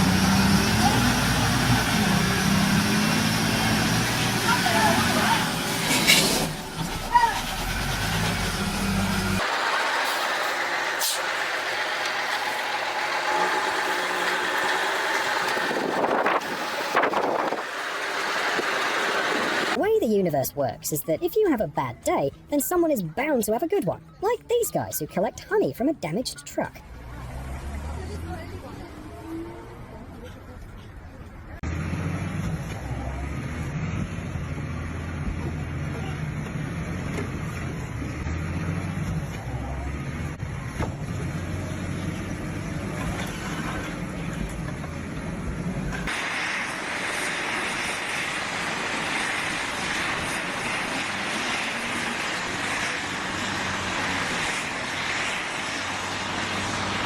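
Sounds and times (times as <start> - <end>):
vehicle engine humming: 0.0 - 20.1
road traffic noise: 0.0 - 20.5, 24.0 - 57.0.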